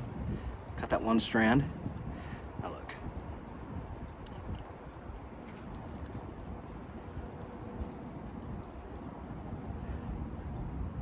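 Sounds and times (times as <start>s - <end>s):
low background rumble: 0.0s - 11.0s
wire clicking and rustling: 2.9s - 10.6s.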